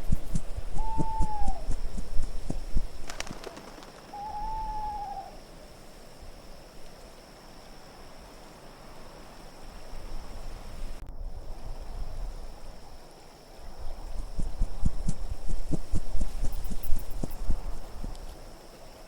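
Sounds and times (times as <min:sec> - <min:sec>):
owl hooting: 0:00.0 - 0:05.4
low wind rumble: 0:00.0 - 0:19.0.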